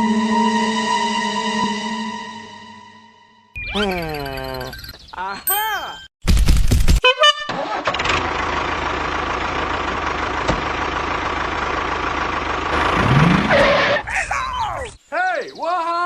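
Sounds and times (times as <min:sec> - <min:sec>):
vehicle engine revving: 0:08.0 - 0:14.1.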